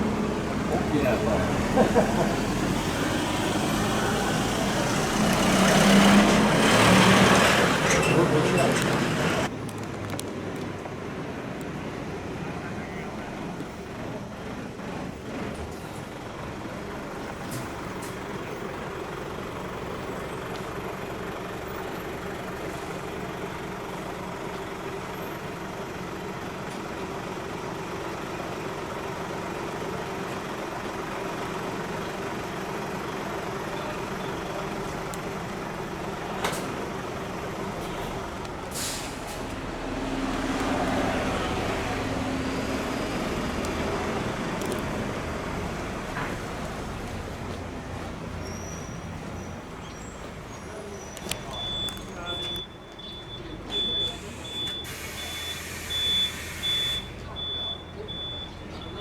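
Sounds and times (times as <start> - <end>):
diesel truck engine running: 0.0 - 59.0
short hiss: 38.7 - 39.4, 54.8 - 57.0.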